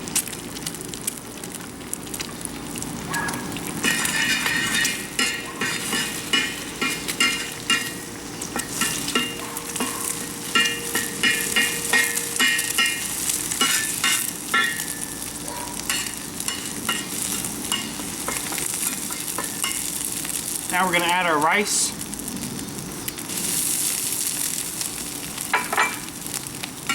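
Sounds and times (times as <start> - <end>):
egg sizzling in oil: 0.0 - 26.9
spatula scraping a wok: 3.8 - 15.2, 15.8 - 19.9.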